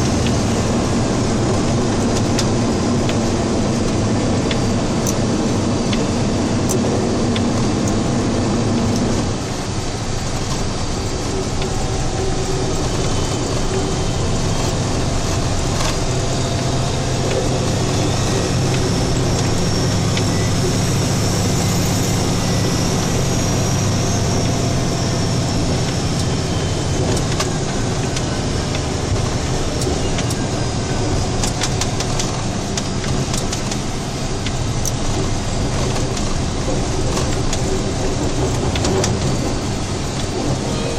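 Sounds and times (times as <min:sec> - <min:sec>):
road noise: 0:00.0 - 0:40.9
truck engine hum: 0:00.0 - 0:40.9.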